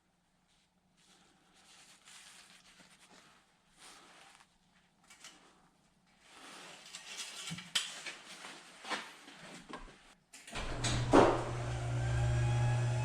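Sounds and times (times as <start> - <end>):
car engine starting and idling: 10.6 - 13.0.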